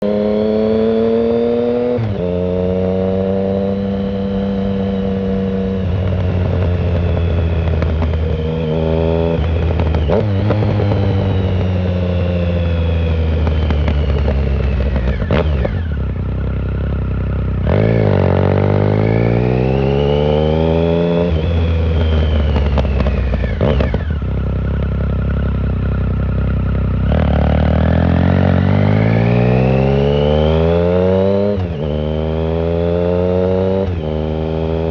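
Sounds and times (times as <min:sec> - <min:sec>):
motorcycle engine accelerating and shifting: 0:00.0 - 0:34.9.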